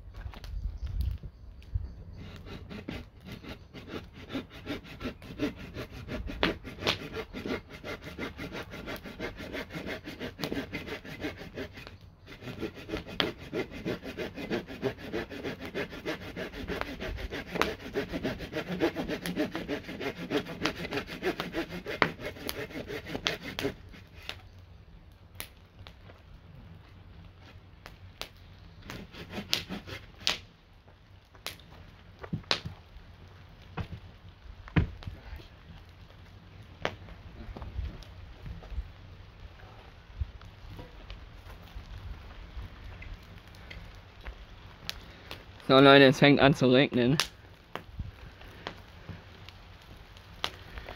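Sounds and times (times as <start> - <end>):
hand saw cutting wood: 2.2 - 24.4, 28.8 - 30.4.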